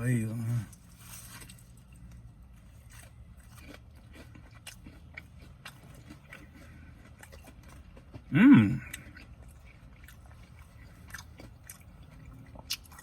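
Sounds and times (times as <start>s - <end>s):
person chewing fried chicken: 0.3s - 13.0s
faint crunches: 0.7s - 5.0s.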